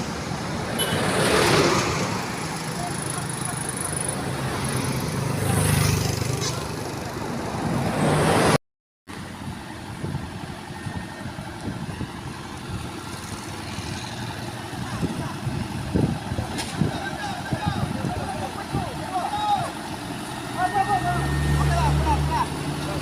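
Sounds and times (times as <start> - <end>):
distant engine noise: 9.1 - 23.0
truck diesel engine working hard: 9.2 - 23.0.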